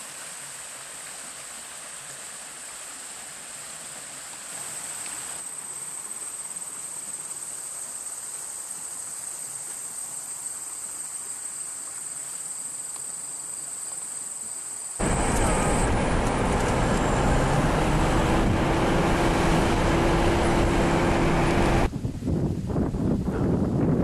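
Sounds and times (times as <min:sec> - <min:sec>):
high-pitched insect chorus: 0:04.6 - 0:15.8
loud steady rushing noise: 0:15.0 - 0:21.9.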